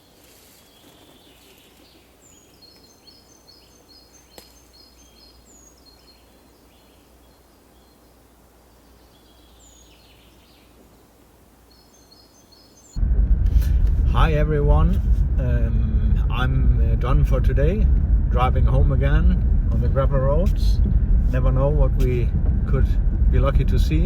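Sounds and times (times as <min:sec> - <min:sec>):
songbirds chirping: 0:00.0 - 0:13.0
low steady hum: 0:13.0 - 0:24.0.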